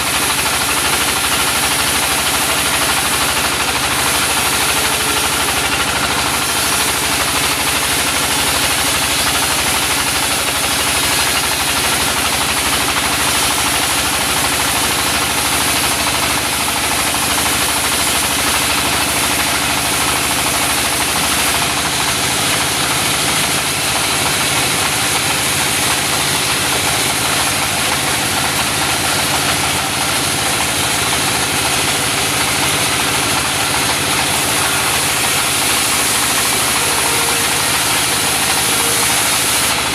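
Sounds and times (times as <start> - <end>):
sawmill engine droning: 0.0 - 39.9.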